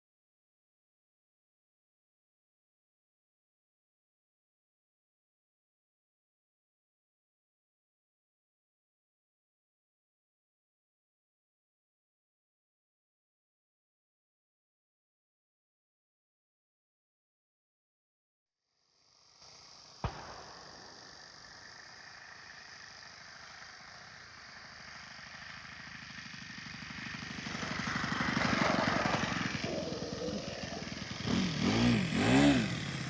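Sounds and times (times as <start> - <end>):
model airplane engine running: 19.5 - 33.0.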